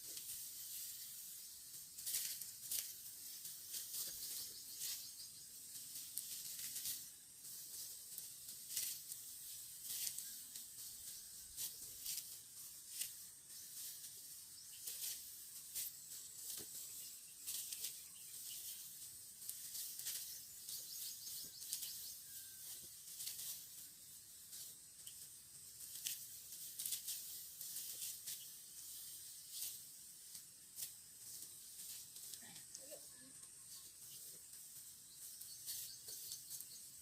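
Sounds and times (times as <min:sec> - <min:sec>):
rice stalks cut by knife: 0:01.9 - 0:05.2, 0:05.8 - 0:23.8, 0:24.5 - 0:32.5.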